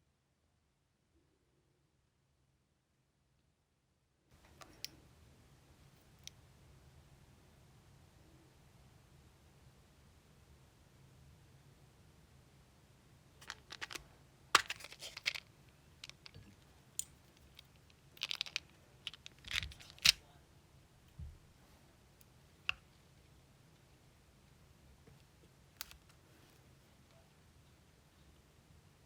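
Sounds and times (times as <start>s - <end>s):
small objects clicking on table: 13.4s - 14.0s, 14.6s - 15.4s, 16.0s - 16.4s, 17.0s - 20.2s.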